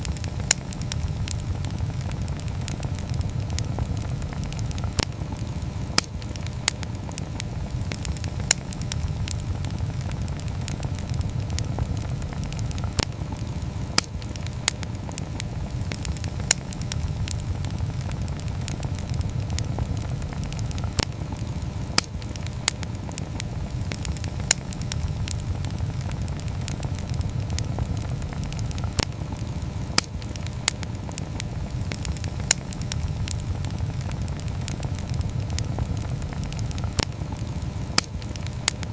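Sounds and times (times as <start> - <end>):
low rush of flames: 0.0 - 38.9
wood crackling and popping: 0.0 - 38.9.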